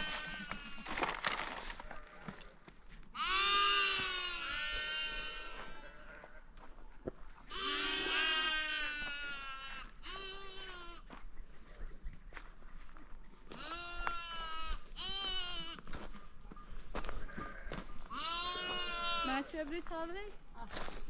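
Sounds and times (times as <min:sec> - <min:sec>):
goats bleating: 0:00.0 - 0:01.1, 0:03.2 - 0:06.5, 0:07.5 - 0:11.1, 0:13.5 - 0:15.9, 0:17.1 - 0:19.6.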